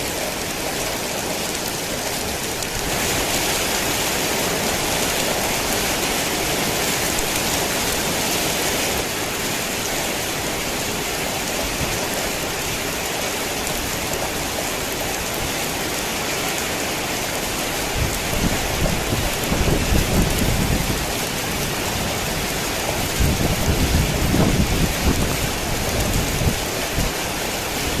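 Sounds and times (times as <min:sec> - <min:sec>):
heavy rain pouring: 0:00.0 - 0:28.0
low thunder rumbles: 0:18.0 - 0:27.2.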